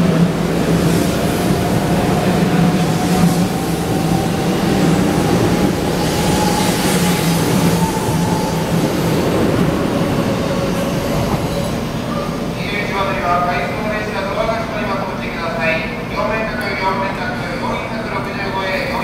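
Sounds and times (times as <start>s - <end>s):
train wheels rushing past: 0.0s - 12.4s.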